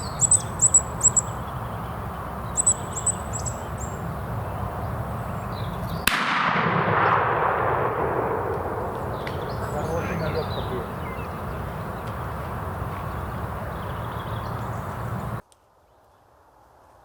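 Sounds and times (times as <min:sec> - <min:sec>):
bird squeaky calls: 0:00.0 - 0:06.1, 0:09.0 - 0:15.4
shotgun shot with echo: 0:06.0 - 0:13.7.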